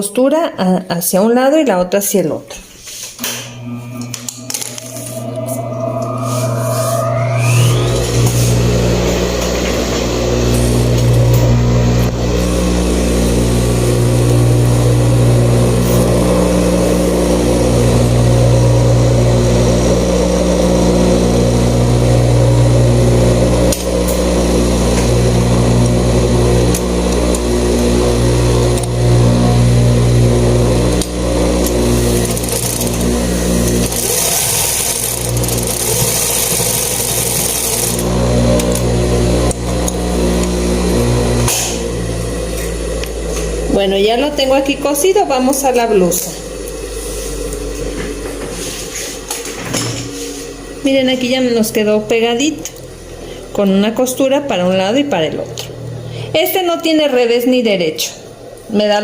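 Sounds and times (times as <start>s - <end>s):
sewing machine running: 7.4s - 49.5s.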